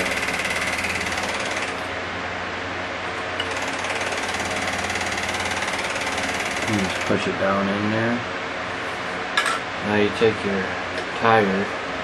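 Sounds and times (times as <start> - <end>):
fast mechanical rattle: 0.0 - 1.9, 3.4 - 7.2.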